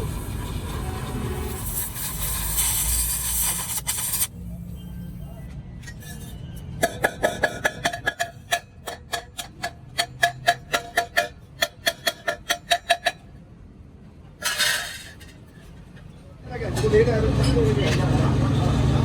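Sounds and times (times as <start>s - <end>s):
hissing burst: 0.0s - 4.4s.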